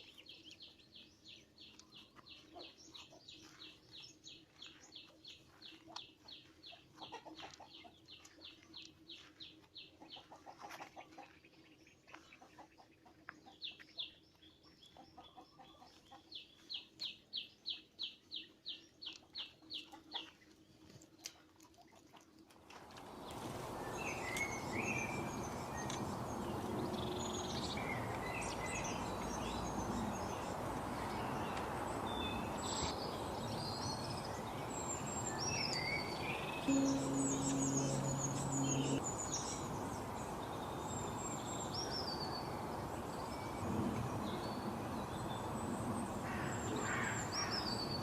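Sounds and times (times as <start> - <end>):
birds chirping: 23.2 - 43.5
bird repeating high note: 36.6 - 39.0.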